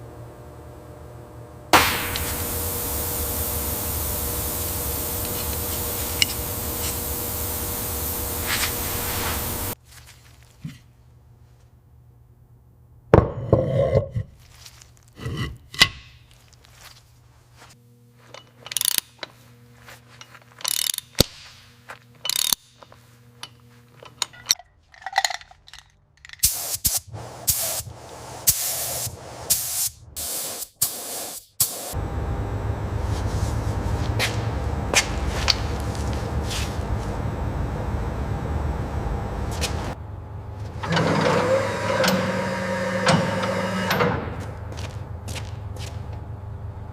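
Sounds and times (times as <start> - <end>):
engine running: 0.0 - 9.8, 32.0 - 46.9
short hissing bursts: 1.8 - 9.8, 26.4 - 32.0.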